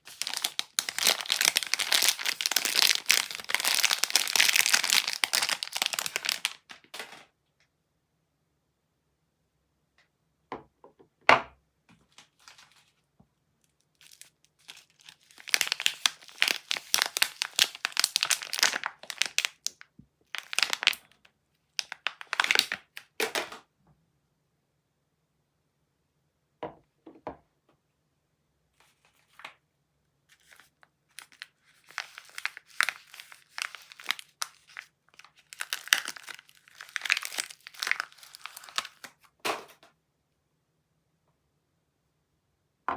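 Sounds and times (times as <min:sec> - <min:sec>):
wrappers crinkling and tearing: 0:00.0 - 0:07.2, 0:12.1 - 0:12.9, 0:13.9 - 0:21.1, 0:21.7 - 0:23.4, 0:30.3 - 0:39.2.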